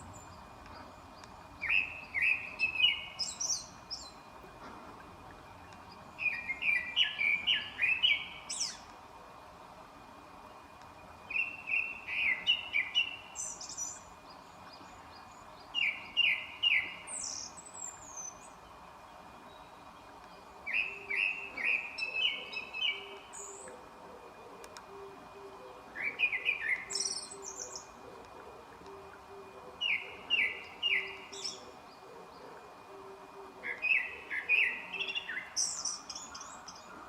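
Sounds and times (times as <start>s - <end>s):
songbird whistling phrase: 29.8s - 31.7s.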